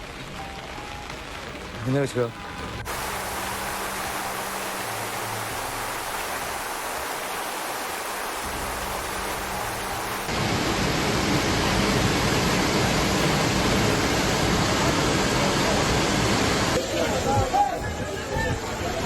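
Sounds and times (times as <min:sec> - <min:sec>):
water rushing: 0:00.0 - 0:19.0.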